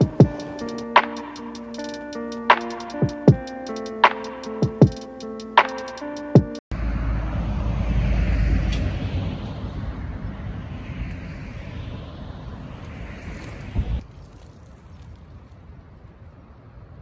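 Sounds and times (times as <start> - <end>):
wind and road noise rumble: 6.7 - 17.0.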